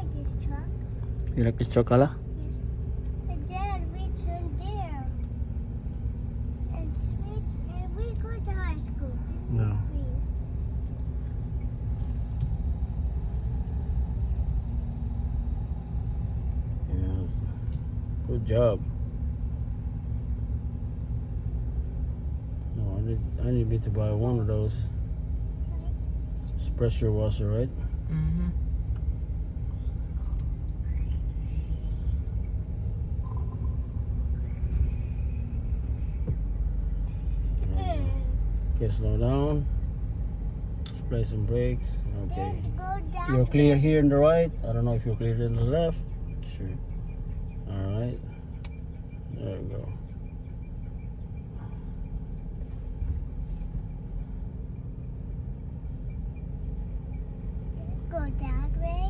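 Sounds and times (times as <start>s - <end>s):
pickup truck engine from inside cab: 0.0s - 59.0s
road noise: 0.0s - 59.0s.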